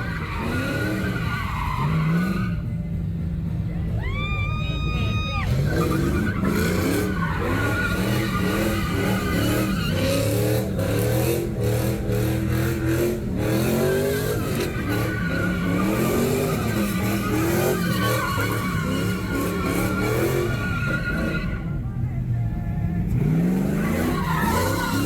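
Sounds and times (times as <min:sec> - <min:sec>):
tyres squealing: 0:04.2 - 0:21.9, 0:23.6 - 0:25.0
car engine revving: 0:05.4 - 0:25.0.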